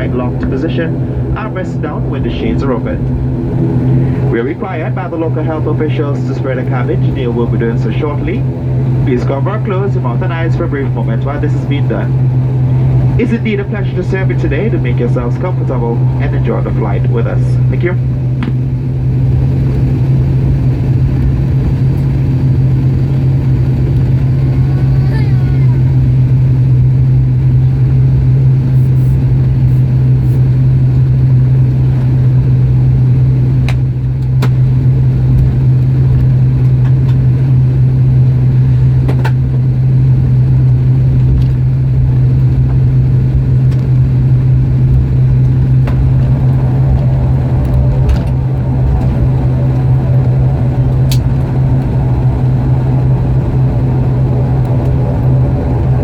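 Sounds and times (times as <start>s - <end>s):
airplane engines droning: 0.0s - 56.0s
higher engine tones: 0.0s - 56.0s
light clicks in cabin: 33.6s - 34.6s, 35.3s - 37.3s, 39.0s - 39.7s, 43.6s - 43.9s, 50.9s - 51.9s.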